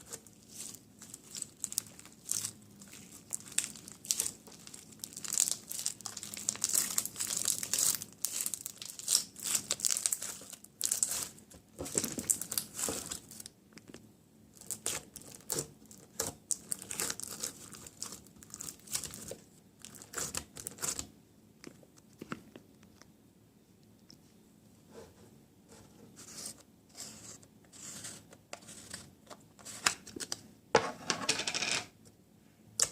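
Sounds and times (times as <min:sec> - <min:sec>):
crinkly rustling by hand: 0:00.0 - 0:21.1.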